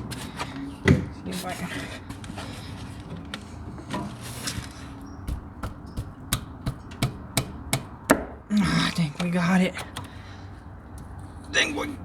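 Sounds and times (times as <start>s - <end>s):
metallic tool knocks and clicks: 5.3s - 8.3s, 9.8s - 10.2s.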